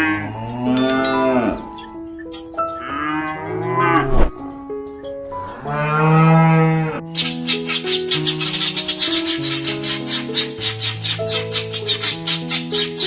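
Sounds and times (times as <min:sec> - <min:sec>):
cattle mooing: 0:00.0 - 0:01.9, 0:05.5 - 0:07.0
background music: 0:00.0 - 0:13.0.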